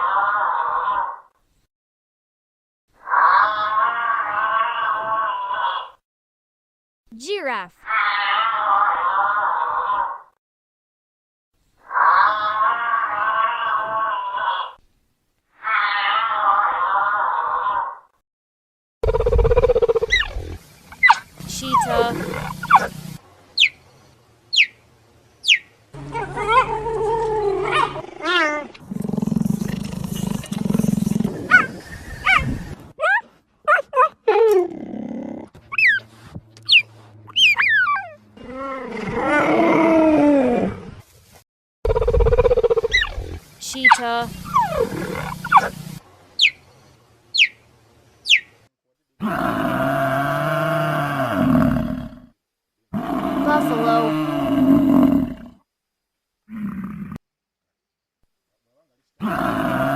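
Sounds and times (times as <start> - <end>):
cheetah purring: 19.0 - 23.2, 26.0 - 32.8, 41.9 - 46.5, 52.9 - 55.6
cheetah chirping: 19.0 - 23.8, 24.5 - 24.8, 25.4 - 26.8, 29.4 - 32.7, 35.7 - 36.0, 36.6 - 38.2, 41.9 - 46.7, 47.3 - 47.6, 48.2 - 48.5
large animal low moaning call: 26.0 - 32.8, 37.0 - 41.0
cheetah wavering call: 43.9 - 46.6
high falling whistled calls: 46.4 - 46.6.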